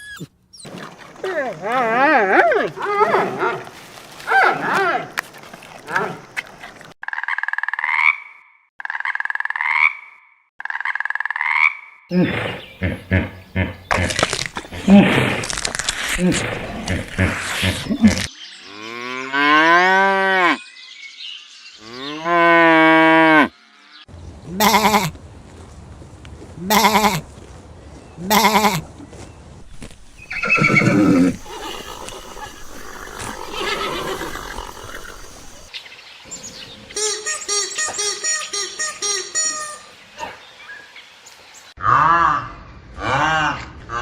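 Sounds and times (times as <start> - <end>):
farm animals lowing: 12.1 - 20.6, 30.2 - 35.7.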